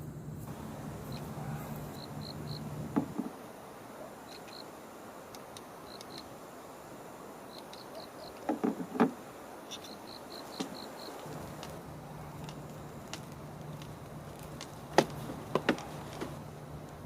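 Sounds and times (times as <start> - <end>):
insect chirping: 0.0 - 17.0
clatter of knocks: 8.5 - 9.2.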